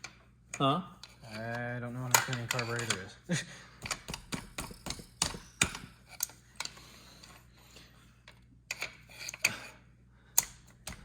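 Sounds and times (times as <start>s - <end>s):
metallic clicks of hand tools: 10.4s - 11.0s.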